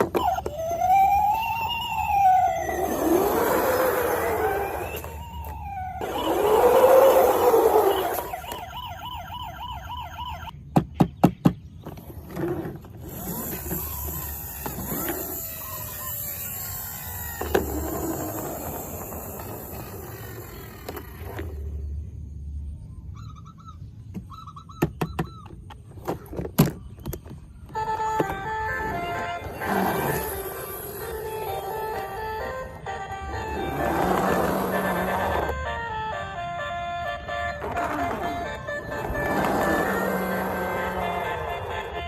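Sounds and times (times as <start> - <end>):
toy siren warbling: 0.0 - 10.5, 13.0 - 21.7, 27.6 - 42.0.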